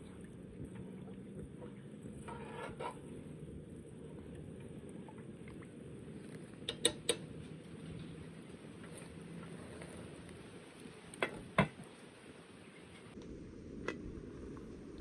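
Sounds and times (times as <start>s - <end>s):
low background noise: 0.0s - 15.0s
utensil scraping cookware: 2.2s - 3.2s.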